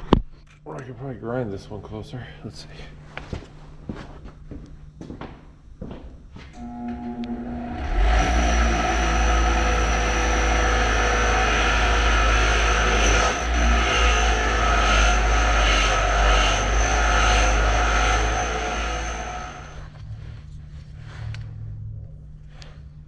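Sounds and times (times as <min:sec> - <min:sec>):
electric grinder whining: 0:06.6 - 0:19.9.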